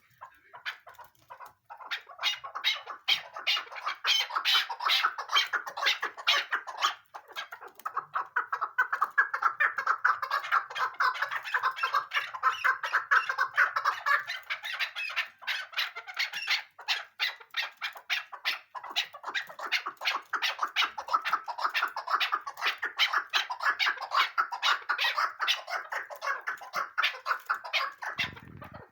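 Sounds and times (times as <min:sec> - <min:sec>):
partridge clucking: 0:18.8 - 0:28.9.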